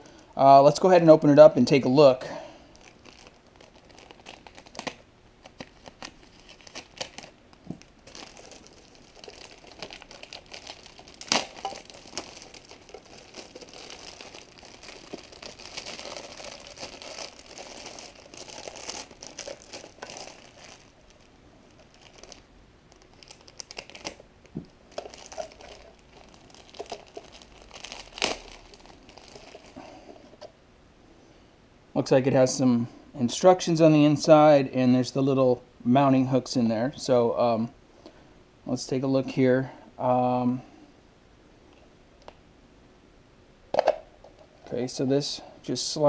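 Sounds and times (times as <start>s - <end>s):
packaging crinkling and tearing: 2.6s - 29.8s.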